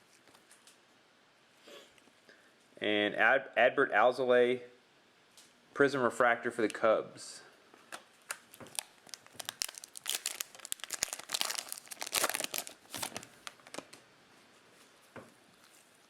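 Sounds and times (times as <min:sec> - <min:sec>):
foil wrapper crinkling and tearing: 0:08.2 - 0:14.0.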